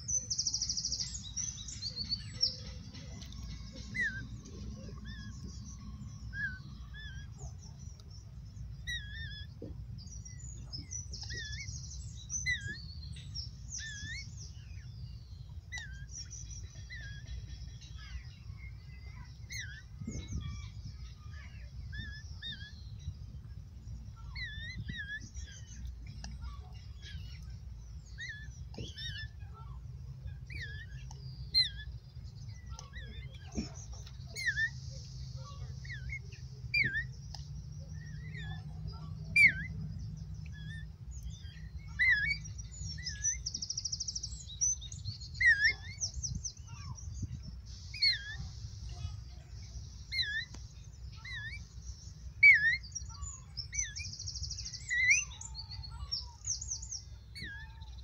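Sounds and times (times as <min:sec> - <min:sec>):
small birds chirping: 0:00.0 - 0:58.0
low rumble: 0:01.2 - 0:15.5.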